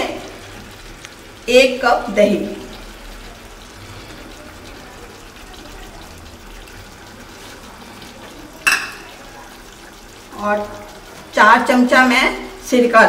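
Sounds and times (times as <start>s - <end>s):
food sizzling in a pot: 0.0s - 13.0s.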